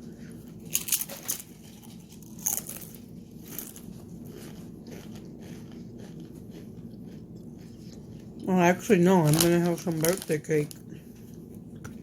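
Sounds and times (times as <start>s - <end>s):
close-up chewing: 0.0s - 12.0s
biting crunchy tortilla chip: 0.6s - 7.7s.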